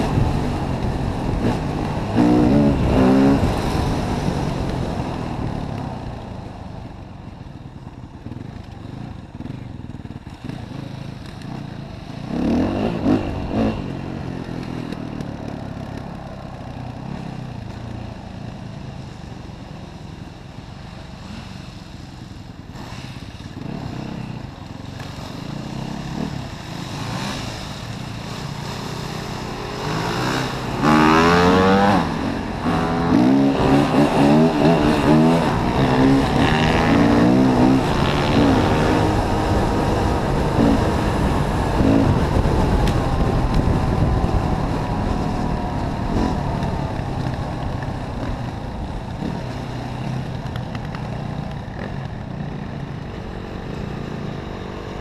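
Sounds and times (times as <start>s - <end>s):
dirt bike engine revving: 0.0s - 4.9s, 12.1s - 15.0s, 22.7s - 47.3s.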